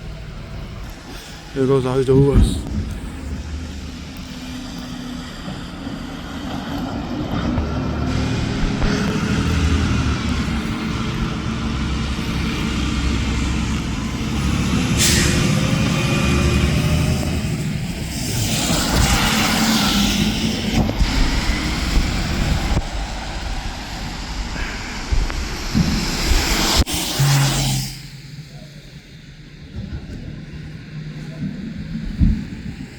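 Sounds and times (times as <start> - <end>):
garbage truck engine running: 0.0 - 26.3
rush of air: 0.5 - 28.4
air brake hiss: 14.9 - 16.1.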